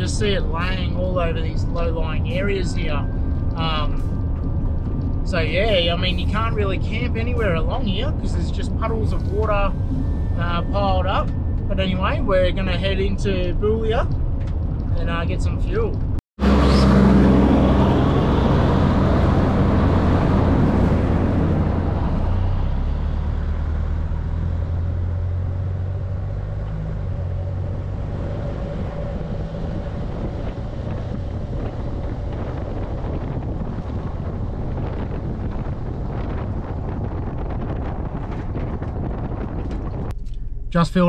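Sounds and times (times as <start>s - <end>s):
engine drone: 0.0s - 41.0s
road noise: 0.0s - 41.0s
wind buffeting microphone: 17.2s - 40.7s.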